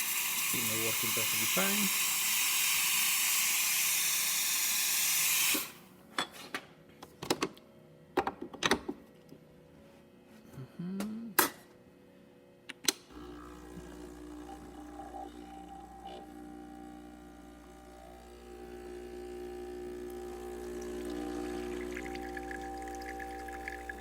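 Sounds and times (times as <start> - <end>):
steam wand hissing: 0.0 - 5.8
low steady hum: 13.1 - 24.0.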